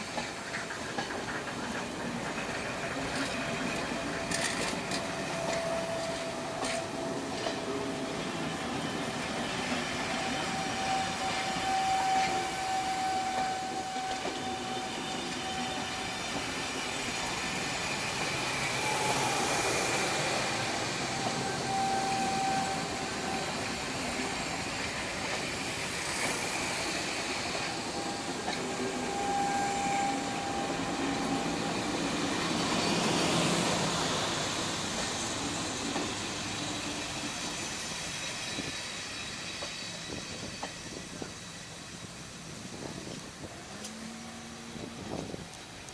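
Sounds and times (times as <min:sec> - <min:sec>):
steam hiss: 0:00.0 - 0:45.9
train wheels on rails: 0:00.0 - 0:45.9
wheel squeal: 0:08.5 - 0:33.8.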